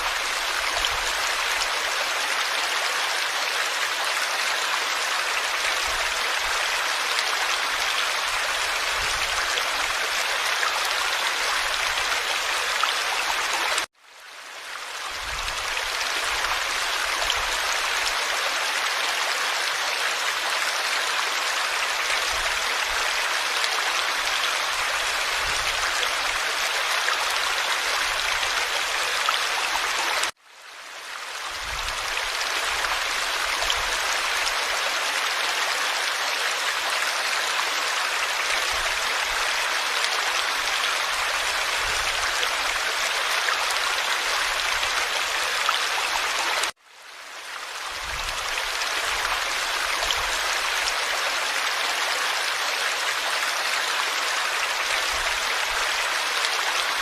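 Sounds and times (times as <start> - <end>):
forest stream flowing: 0.0 - 57.0.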